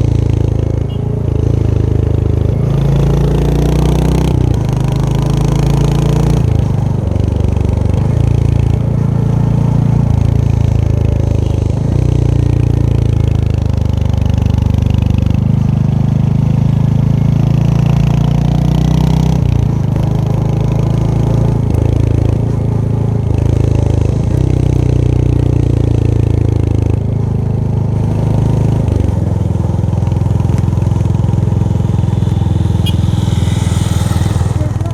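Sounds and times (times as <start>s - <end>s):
motorcycle engine revving: 28.0s - 34.9s.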